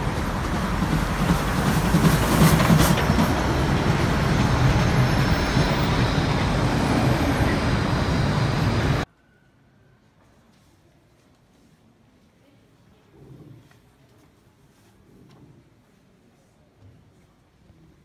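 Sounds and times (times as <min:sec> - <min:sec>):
train rumbling: 0:00.0 - 0:09.1.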